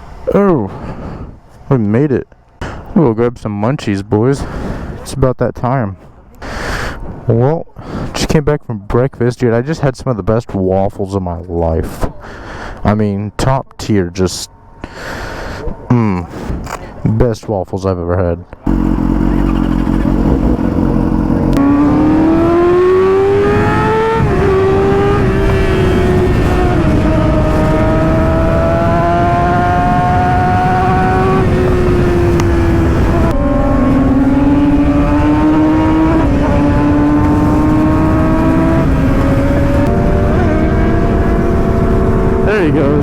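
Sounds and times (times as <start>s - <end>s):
motorcycle engine accelerating: 18.6s - 43.0s
wind rushing over microphone: 18.7s - 43.0s.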